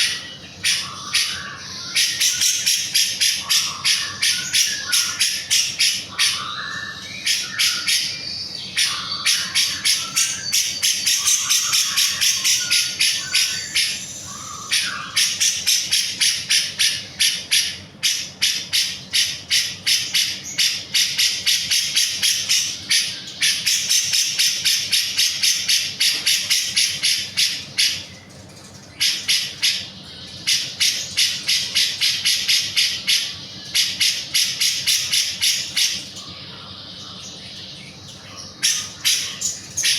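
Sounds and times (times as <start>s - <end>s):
lower bird warbling and whistles: 0.0s - 28.0s.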